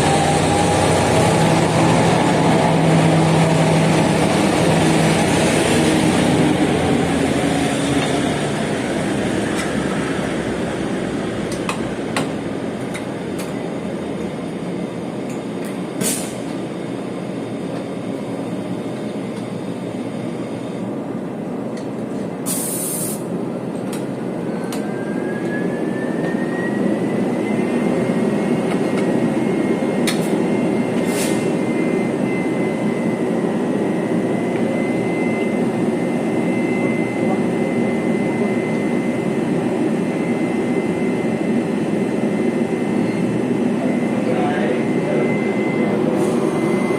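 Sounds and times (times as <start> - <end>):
train rumbling on rails: 0.0 - 46.9
high-pitched whine: 24.4 - 46.9.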